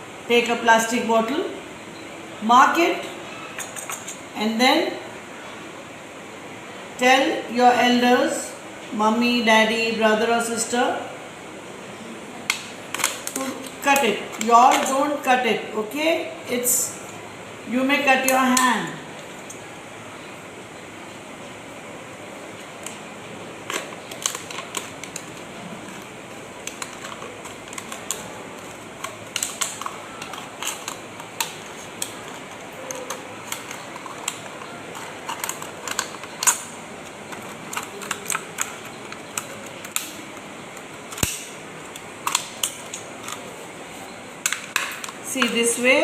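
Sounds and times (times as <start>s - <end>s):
plastic bottle cracking: 29.0s - 43.4s.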